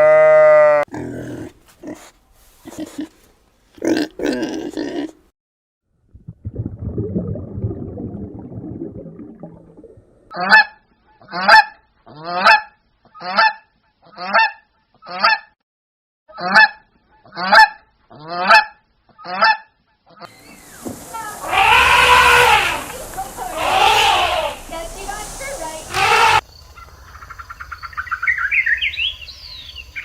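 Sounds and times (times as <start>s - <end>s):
waterfowl harsh calls: 21.0s - 26.4s.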